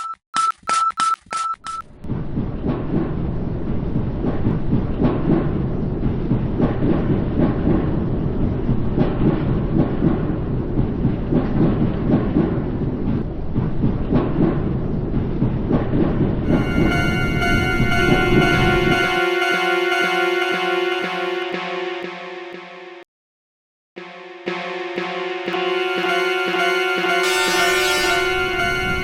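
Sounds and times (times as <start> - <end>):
electronic beeps: 16.5 - 21.4, 25.6 - 29.0.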